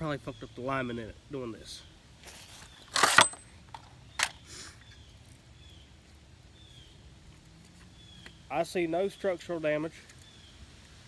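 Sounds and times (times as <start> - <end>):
toy truck crashing: 2.9 - 4.4.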